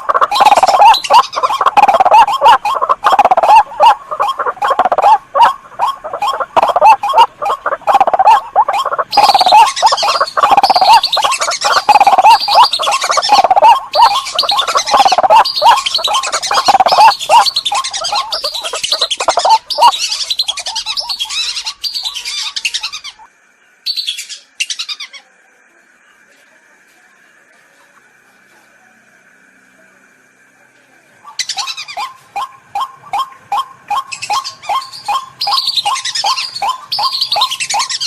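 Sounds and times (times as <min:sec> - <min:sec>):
harsh waterbird calls: 0:00.0 - 0:23.3, 0:31.2 - 0:38.0.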